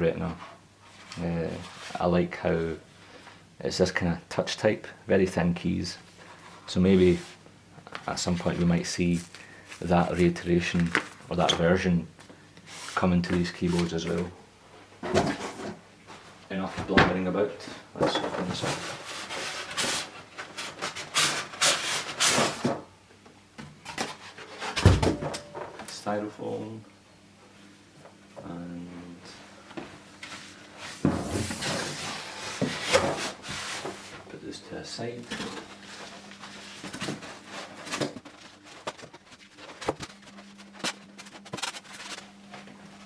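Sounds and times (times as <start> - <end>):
rubbing and scraping packaging: 18.4 - 22.8, 30.3 - 34.2, 35.2 - 43.0
packaging knocks and rustles: 36.8 - 42.3.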